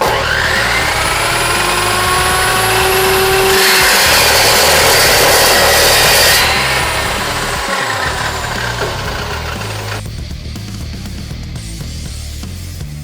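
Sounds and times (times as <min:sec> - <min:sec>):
power tool whining on steel: 0:00.0 - 0:10.1.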